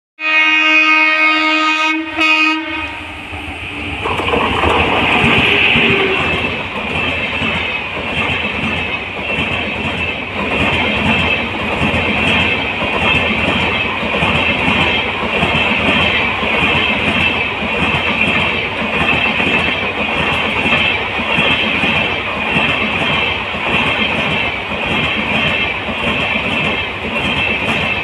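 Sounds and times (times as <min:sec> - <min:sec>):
train coaches rolling on rails: 0:02.2 - 0:28.0.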